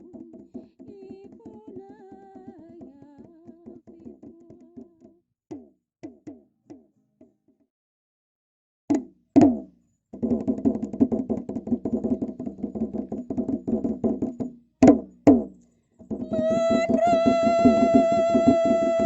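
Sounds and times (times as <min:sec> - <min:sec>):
drumming: 0:09.0 - 0:19.0
long held note: 0:16.3 - 0:19.0.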